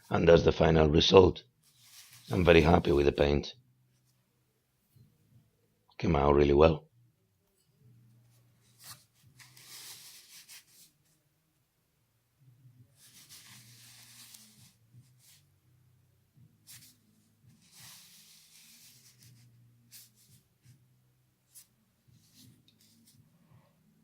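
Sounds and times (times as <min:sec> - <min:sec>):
faint rubbing and scraping: 0:01.6 - 0:04.2, 0:08.2 - 0:11.2, 0:12.9 - 0:15.6, 0:16.6 - 0:20.8, 0:21.5 - 0:23.8.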